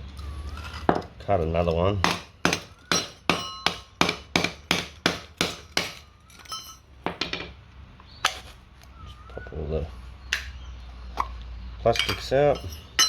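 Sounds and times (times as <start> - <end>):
hammer striking metal: 2.0 - 7.5.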